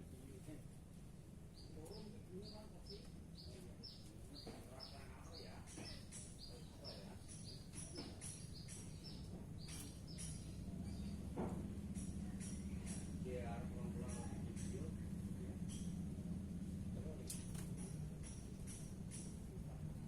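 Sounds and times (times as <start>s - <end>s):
bird singing falling notes: 1.9s - 11.4s.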